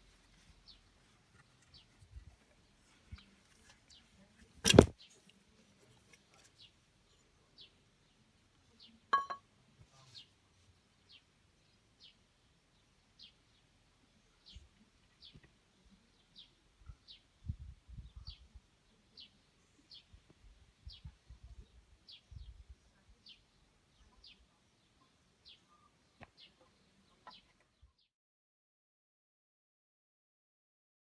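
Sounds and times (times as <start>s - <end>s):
ringing metallic clink: 9.2s - 9.4s.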